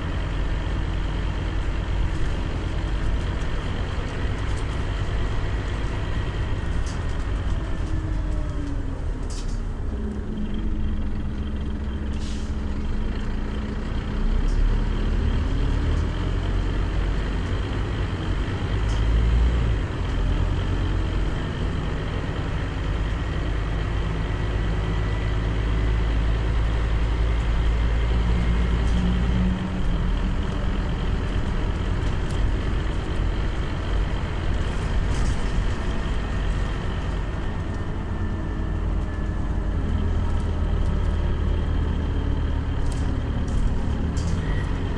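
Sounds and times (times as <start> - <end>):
bus diesel engine drone: 0.0 - 44.9
road noise: 0.0 - 44.9.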